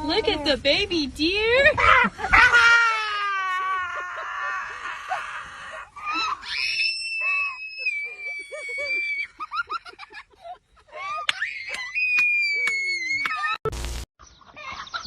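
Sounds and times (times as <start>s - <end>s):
high-pitched screaming cries: 1.7s - 9.7s, 10.9s - 13.6s.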